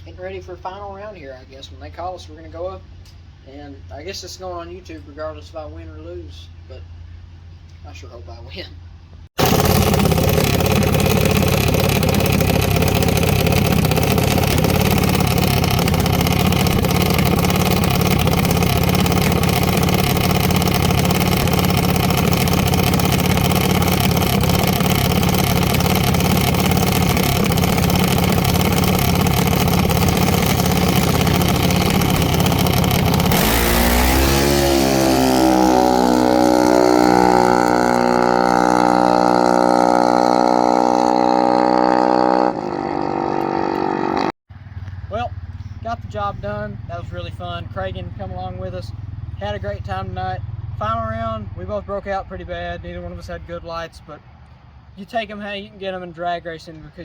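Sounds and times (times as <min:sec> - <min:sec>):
single-cylinder engine running: 0:09.4 - 0:41.8.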